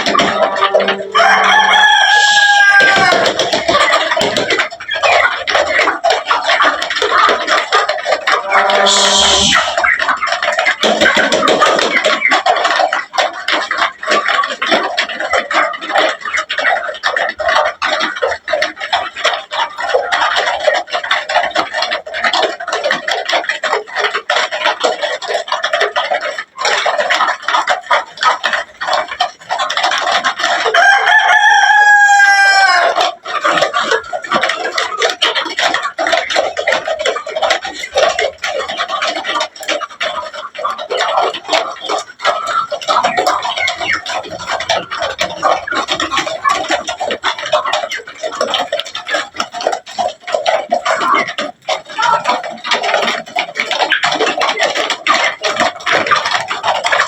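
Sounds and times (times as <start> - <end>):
chickens clucking: 0.0 - 57.0
rooster crowing: 0.4 - 3.3, 8.4 - 9.8, 30.8 - 33.0.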